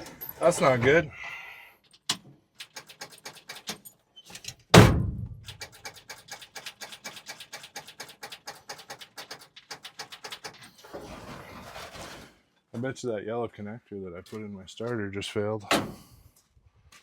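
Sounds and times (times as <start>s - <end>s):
loud heavy thunk: 4.8s - 5.4s
sharp clicks: 5.3s - 10.6s
fast even clicking: 5.4s - 10.6s.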